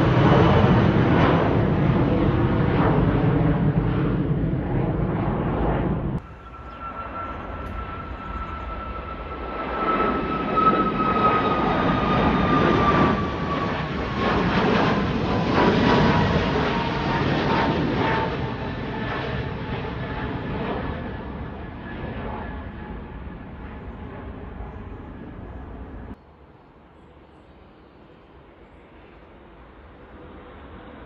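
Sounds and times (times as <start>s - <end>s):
high engine whine: 0.0s - 15.6s
jet engines roaring: 0.0s - 26.2s.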